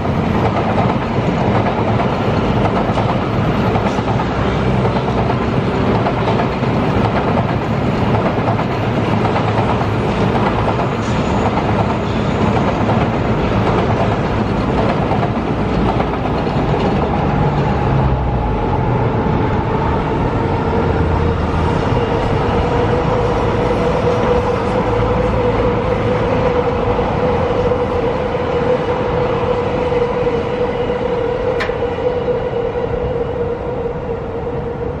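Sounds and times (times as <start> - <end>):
steady train whine: 0.0 - 35.0
trains rumbling past: 0.0 - 35.0.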